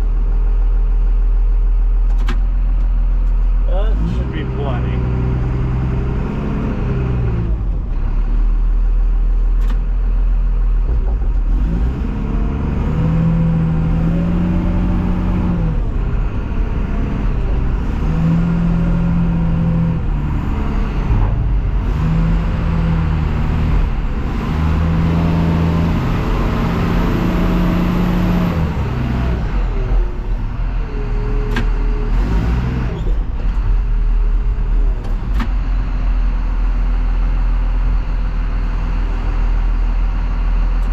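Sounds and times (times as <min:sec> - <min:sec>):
diesel truck engine accelerating: 0:00.0 - 0:40.9.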